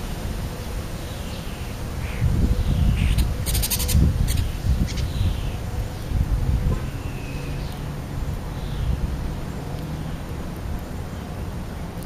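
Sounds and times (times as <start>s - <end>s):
wind rumble on microphone: 0.0s - 12.0s
birds calling: 0.6s - 7.9s.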